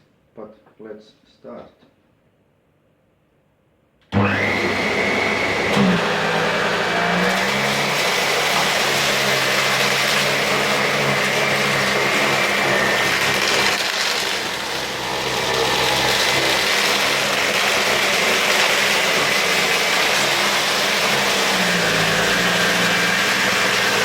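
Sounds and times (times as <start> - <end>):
vacuum cleaner motor whine: 4.1 - 24.0.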